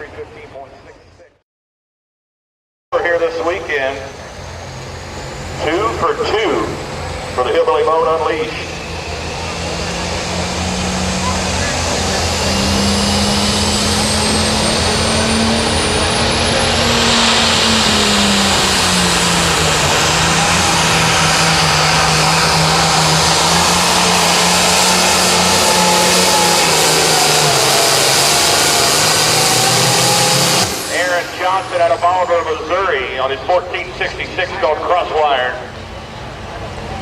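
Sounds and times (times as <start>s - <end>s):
diesel engine running flat out: 3.0s - 37.0s
high turbo whistle: 8.0s - 32.8s.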